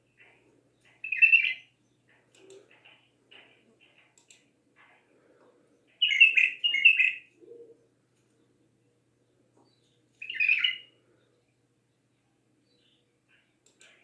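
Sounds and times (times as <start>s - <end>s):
bird whistling song: 1.0s - 1.7s, 6.0s - 7.3s, 10.2s - 10.9s.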